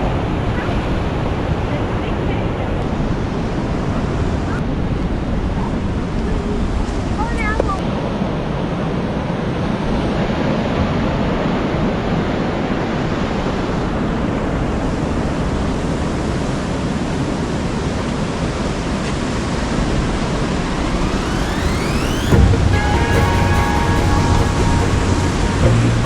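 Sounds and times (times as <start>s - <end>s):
ocean surf rushing: 19.7s - 26.0s.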